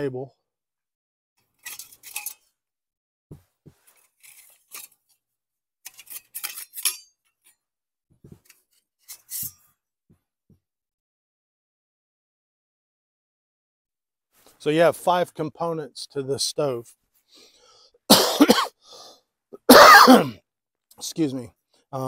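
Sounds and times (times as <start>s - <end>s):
metal scraping and clinking: 1.4s - 2.5s, 3.8s - 5.2s, 5.8s - 7.6s, 8.4s - 9.7s.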